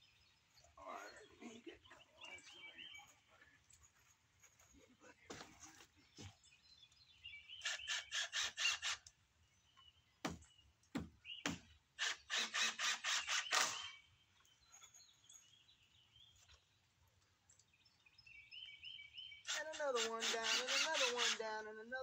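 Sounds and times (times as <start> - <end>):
birds chirping: 0.0 - 22.0
nails driven into lumber: 10.2 - 14.0.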